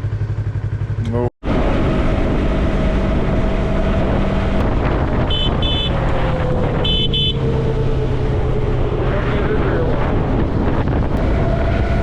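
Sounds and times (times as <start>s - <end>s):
motorcycle engine running: 0.0s - 7.6s
wind on microphone: 1.5s - 7.1s, 8.2s - 12.0s.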